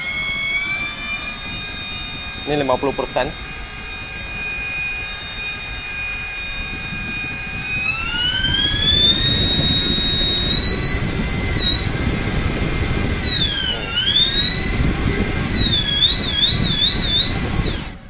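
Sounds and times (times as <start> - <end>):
electric motor whine: 0.0 - 18.0.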